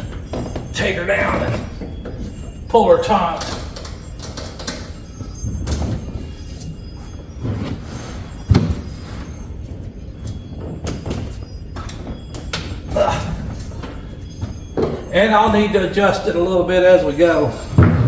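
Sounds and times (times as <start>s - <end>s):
handling knocks and clicks: 0.0s - 7.8s.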